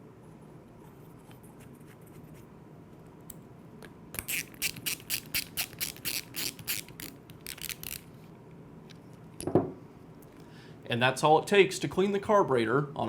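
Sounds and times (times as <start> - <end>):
ratchet wrench clicking: 4.2 - 8.0.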